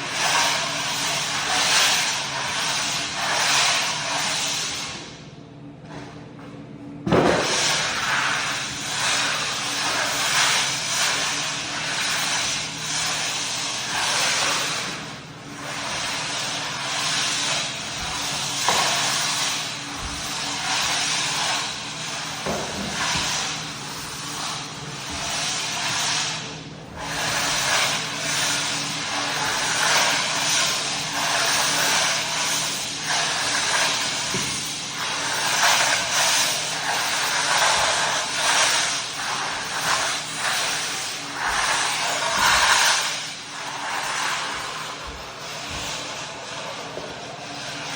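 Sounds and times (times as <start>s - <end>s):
pad scrubbing on wood: 33.1s - 47.9s.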